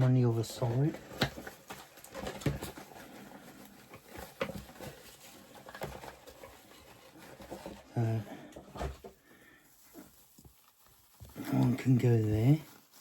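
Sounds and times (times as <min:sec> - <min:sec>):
hands rustling moss: 0:09.1 - 0:13.0.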